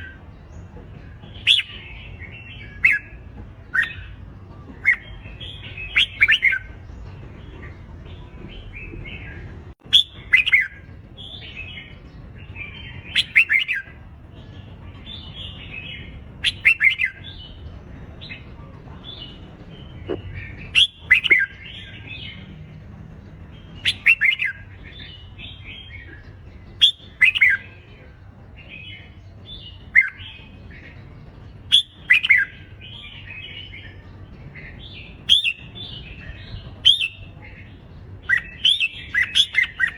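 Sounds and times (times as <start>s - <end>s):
bird singing warbled phrases: 1.4s - 39.9s
bird chattering: 19.3s - 22.4s.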